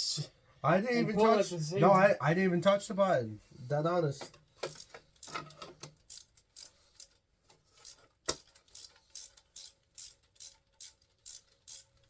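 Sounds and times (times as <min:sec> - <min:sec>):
ratchet wrench clicking: 0:04.6 - 0:12.0.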